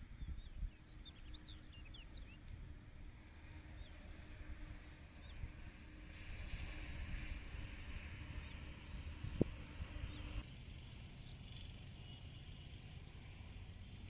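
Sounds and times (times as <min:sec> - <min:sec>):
small birds chirping: 0:00.0 - 0:02.8, 0:09.8 - 0:14.0.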